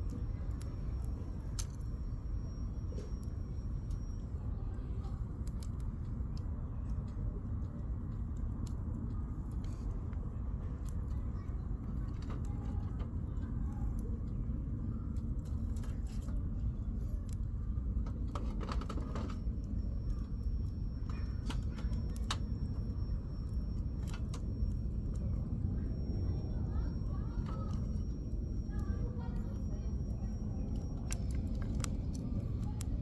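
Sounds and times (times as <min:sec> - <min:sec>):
faint high steady tone: 0:00.0 - 0:05.4, 0:19.0 - 0:33.0
campfire crackling and popping: 0:16.9 - 0:33.0.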